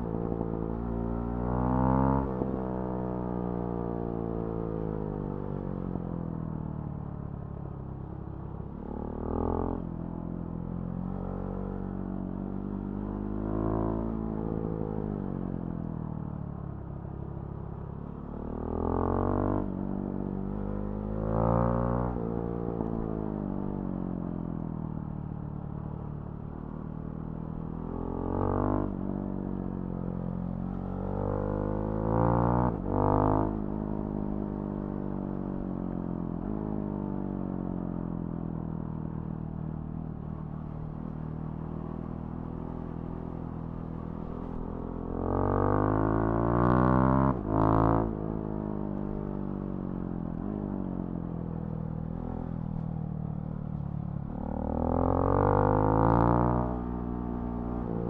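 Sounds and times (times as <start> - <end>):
motorcycle engine revving: 54.2 - 58.0.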